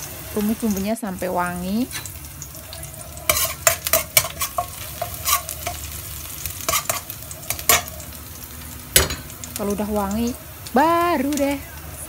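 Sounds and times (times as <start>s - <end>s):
garlic sizzling in hot oil: 0.0s - 12.0s
metal spatula scraping pan: 2.9s - 8.1s.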